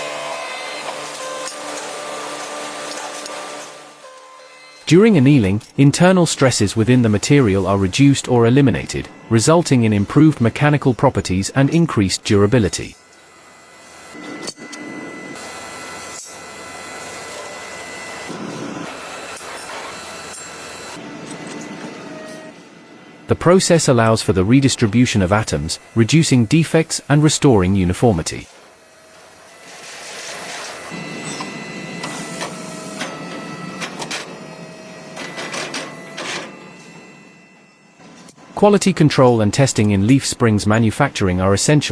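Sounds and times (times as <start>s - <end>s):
factory machinery running: 0.0s - 41.9s
faint high whine: 4.0s - 41.9s.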